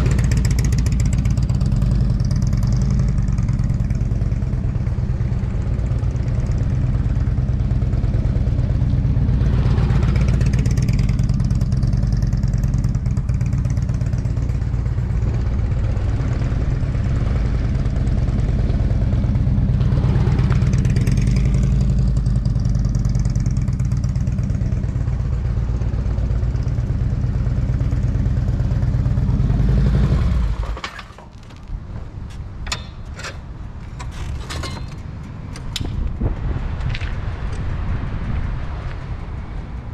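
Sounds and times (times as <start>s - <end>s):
engine running: 0.0s - 39.9s
clicks and rattles: 30.6s - 36.2s.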